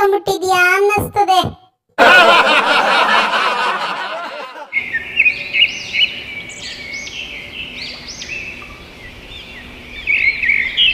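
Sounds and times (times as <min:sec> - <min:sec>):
birds chirping: 0:04.6 - 0:10.9.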